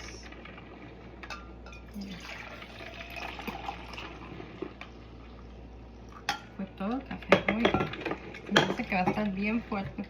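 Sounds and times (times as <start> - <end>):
coffee maker trickling coffee: 1.8 - 7.2.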